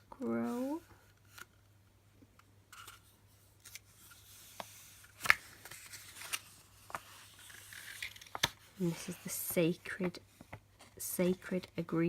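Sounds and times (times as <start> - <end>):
paper rustling: 2.7 - 11.7.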